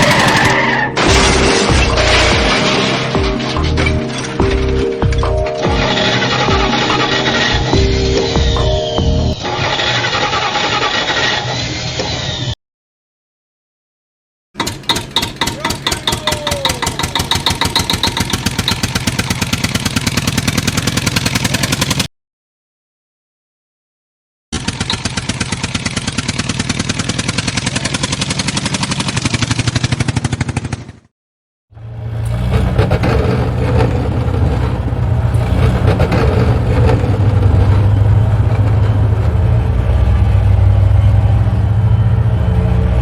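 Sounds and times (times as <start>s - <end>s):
deep engine running: 0.0s - 9.4s, 15.8s - 22.1s, 31.7s - 43.0s
engine chugging fast: 0.0s - 11.0s, 14.6s - 22.1s, 24.6s - 31.1s, 31.7s - 43.0s.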